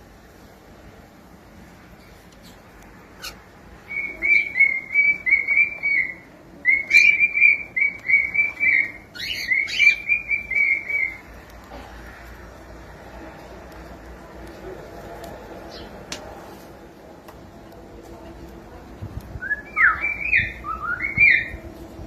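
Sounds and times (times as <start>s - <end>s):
cockatiel whistling: 3.2s - 11.2s, 19.4s - 21.6s.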